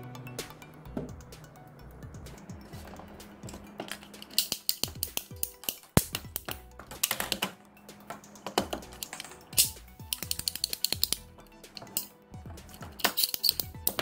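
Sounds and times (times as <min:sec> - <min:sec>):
background music: 0:00.0 - 0:14.0
pipe cutter ratchet clicking: 0:03.9 - 0:07.4, 0:08.5 - 0:14.0.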